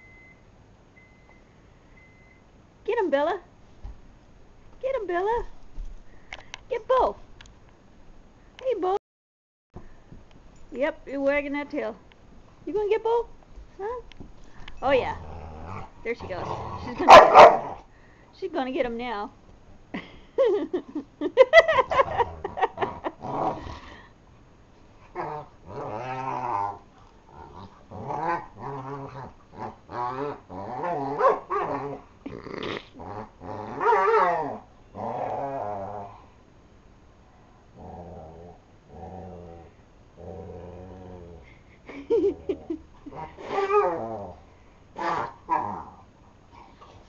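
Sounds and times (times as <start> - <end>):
dogs growling: 14.9 - 17.9, 21.9 - 24.0, 25.1 - 36.4, 37.7 - 47.0
dog yips and barks: 17.0 - 17.7.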